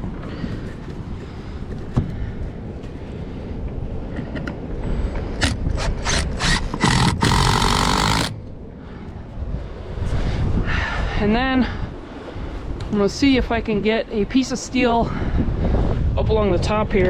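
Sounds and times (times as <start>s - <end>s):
wind rumbling on microphone: 0.0s - 17.0s
barn door scraping: 5.4s - 8.3s.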